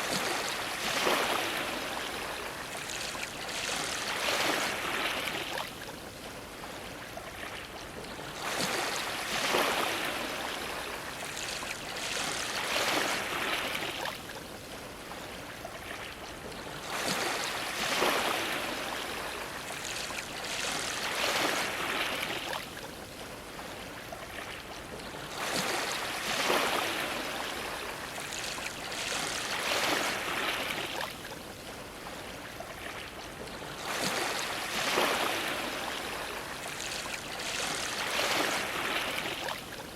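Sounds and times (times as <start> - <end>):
waves splashing against dock: 0.0 - 6.4, 25.2 - 31.2, 33.6 - 39.8.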